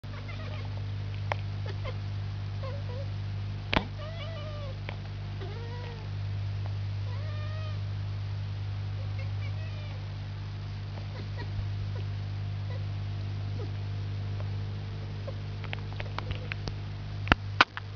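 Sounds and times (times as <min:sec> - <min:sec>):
low steady hum: 0:00.0 - 0:17.9
cat chirping calls: 0:00.1 - 0:00.7, 0:01.6 - 0:02.0, 0:04.0 - 0:04.8, 0:07.1 - 0:07.8, 0:09.0 - 0:10.0.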